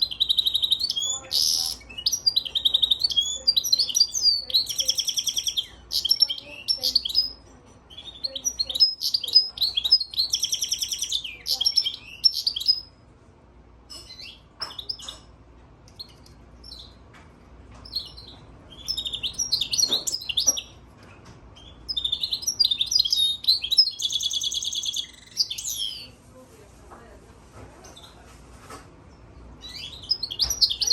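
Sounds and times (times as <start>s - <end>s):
bird singing twittering trills: 0.0s - 12.9s, 13.9s - 15.3s, 15.9s - 17.0s, 17.8s - 20.9s, 21.5s - 26.1s, 29.6s - 30.9s.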